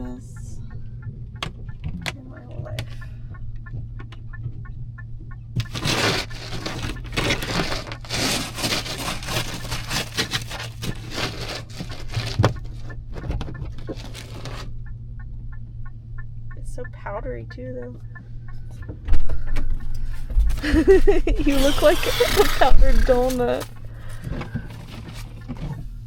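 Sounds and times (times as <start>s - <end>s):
low vehicle hum: 0.0s - 26.0s
snow crunching and scraping: 5.6s - 12.4s.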